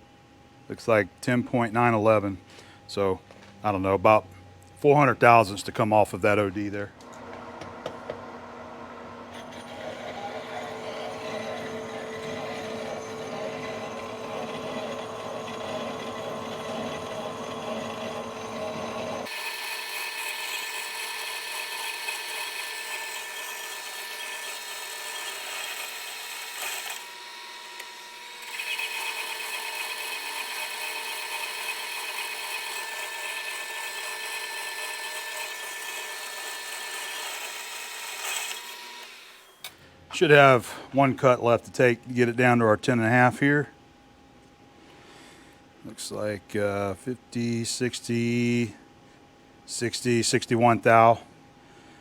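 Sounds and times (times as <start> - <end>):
lathe cutting steel: 7.1 - 39.6.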